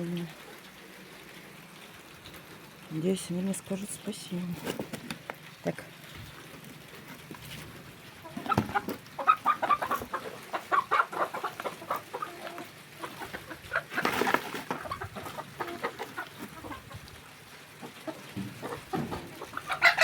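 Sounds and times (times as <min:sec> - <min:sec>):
hens clucking excitedly: 0:07.9 - 0:20.0.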